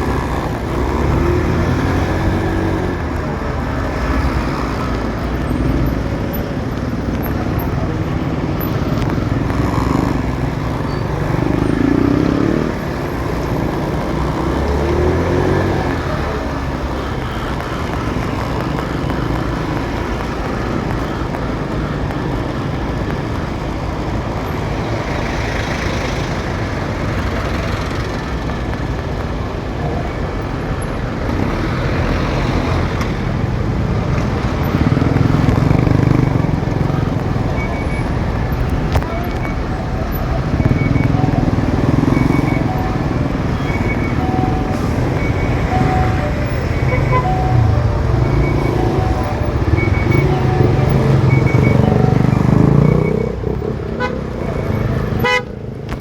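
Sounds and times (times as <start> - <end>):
cars and trucks passing: 0.0 - 56.0
motorcycle engine: 30.5 - 56.0.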